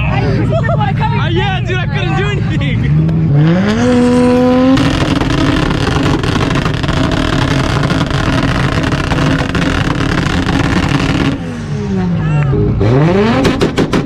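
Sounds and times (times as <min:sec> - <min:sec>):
car engine on rev limiter: 0:02.7 - 0:14.0
exhaust pops and bangs: 0:04.2 - 0:11.4, 0:13.2 - 0:14.0.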